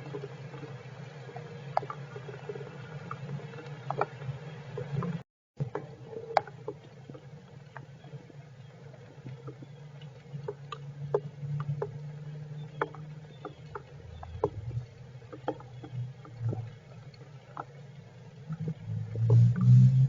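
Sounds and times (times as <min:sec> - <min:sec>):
low steady hum: 0:00.0 - 0:20.0
rain drips tapping: 0:09.2 - 0:16.8.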